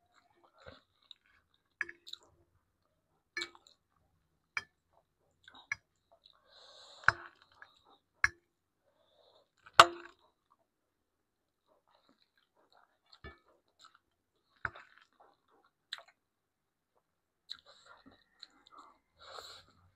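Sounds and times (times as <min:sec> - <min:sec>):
person chewing: 0:00.1 - 0:02.4, 0:04.6 - 0:08.0, 0:11.8 - 0:16.2, 0:17.5 - 0:19.9.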